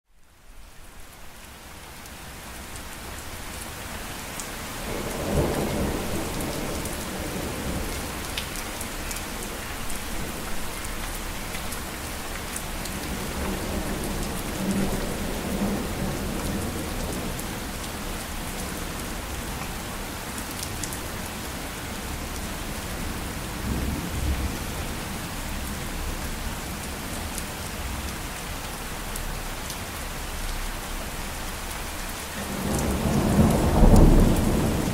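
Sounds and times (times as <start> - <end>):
heavy rain: 0.1 - 34.9
low rolling thunder: 4.8 - 8.3, 32.4 - 34.9.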